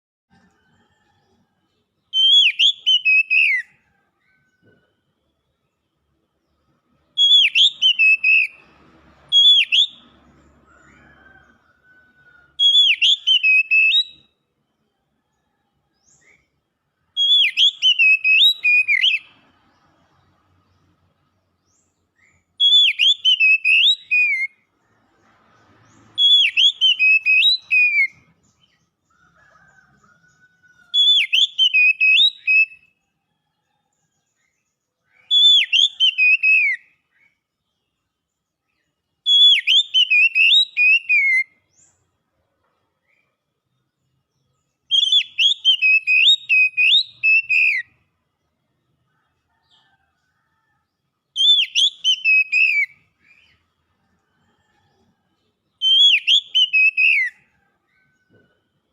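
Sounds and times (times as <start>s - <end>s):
bird singing swooping whistles: 2.2s - 3.7s, 7.2s - 8.6s, 9.3s - 10.1s, 12.6s - 14.2s, 17.2s - 19.3s, 22.2s - 24.5s, 26.2s - 28.2s, 31.0s - 32.8s, 35.1s - 36.8s, 39.3s - 41.5s, 44.9s - 47.9s, 51.4s - 53.5s, 55.8s - 57.4s.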